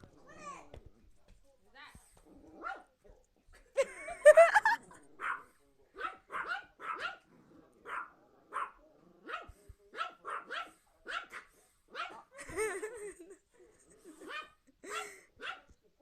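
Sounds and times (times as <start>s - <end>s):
dog barking: 2.6s - 2.9s, 5.2s - 12.3s, 14.2s - 15.7s.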